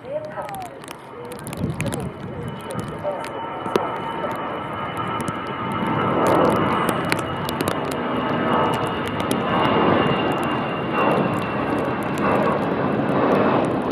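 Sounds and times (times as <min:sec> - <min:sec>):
jet engines roaring: 0:00.0 - 0:13.9.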